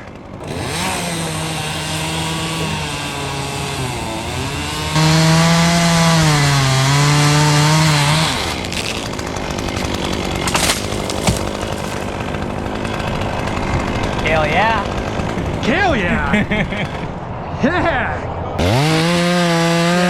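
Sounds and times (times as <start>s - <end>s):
chainsaw cutting wood: 0.0s - 15.6s, 18.6s - 20.0s
sharp knocks: 8.6s - 12.4s.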